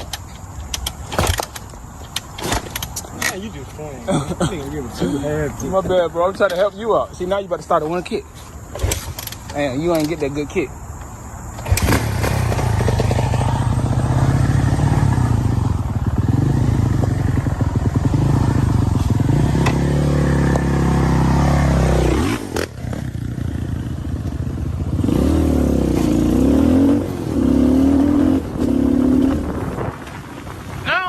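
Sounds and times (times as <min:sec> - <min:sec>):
dirt bike engine revving: 0:11.6 - 0:30.8.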